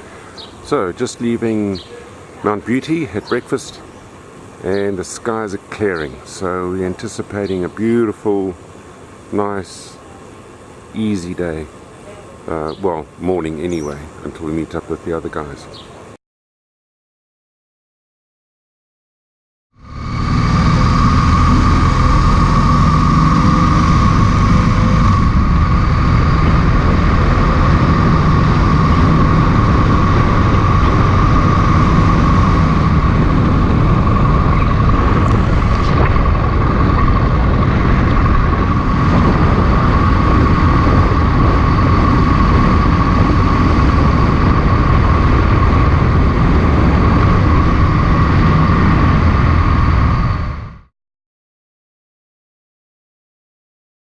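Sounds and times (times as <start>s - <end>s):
high-pitched whine: 19.8s - 50.9s
motorcycle engine rumble: 19.8s - 50.9s
wind noise on microphone: 19.8s - 50.9s.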